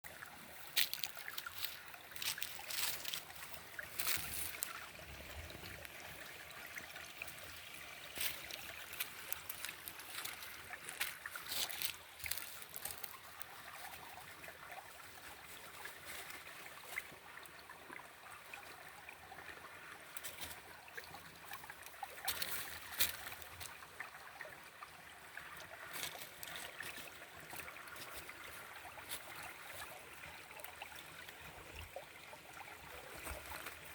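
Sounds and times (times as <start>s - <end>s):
water splashing: 0.0s - 17.2s
stream trickling over stones: 0.0s - 33.9s.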